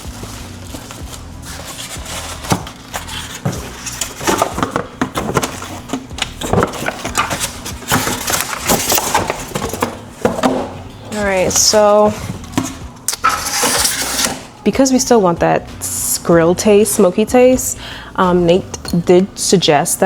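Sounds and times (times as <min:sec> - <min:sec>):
cardboard box being handled: 0:00.0 - 0:14.3.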